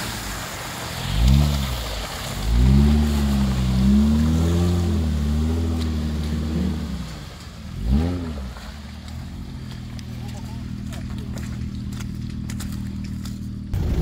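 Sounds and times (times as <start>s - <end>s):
steady hiss of water: 0.0s - 9.3s
off-road vehicle engine revving: 0.9s - 14.0s.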